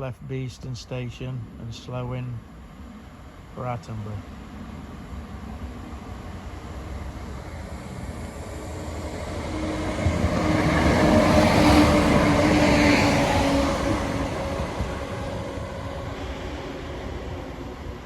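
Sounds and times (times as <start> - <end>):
train engine hum: 0.0 - 18.0
train wheel noise: 4.7 - 18.0.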